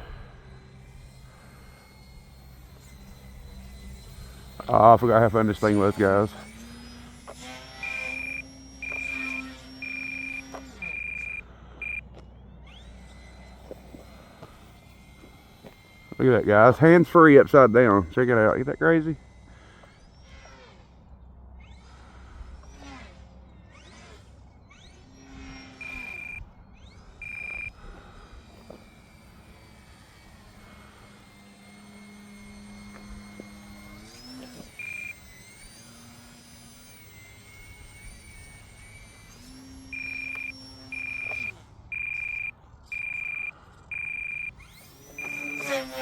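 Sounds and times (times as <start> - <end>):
rc plane motor whining: 0.0 - 46.0
short high electronic beeps: 7.8 - 12.0, 25.8 - 26.4, 27.2 - 27.8, 34.8 - 35.2, 39.9 - 44.6, 45.2 - 45.9.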